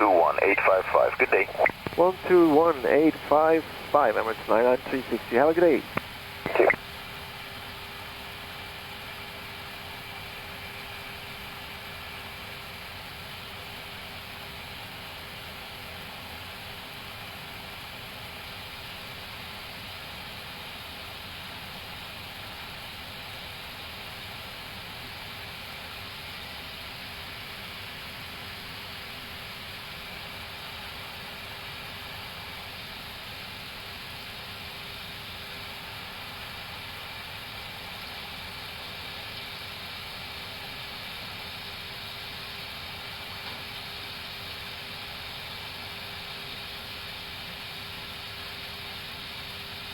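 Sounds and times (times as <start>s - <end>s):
constant hum: 0.0s - 6.8s.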